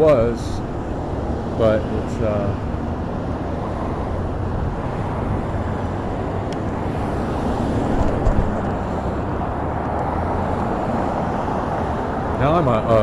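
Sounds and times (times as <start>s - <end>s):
street traffic: 0.0s - 13.0s
wind: 0.0s - 13.0s
scooter wheels rumbling: 5.4s - 9.4s.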